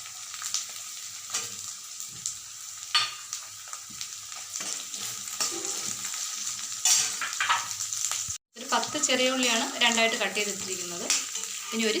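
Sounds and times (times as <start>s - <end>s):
onions sizzling in hot oil: 0.0s - 12.0s
spoon scraping pan: 4.6s - 7.8s, 10.6s - 12.0s.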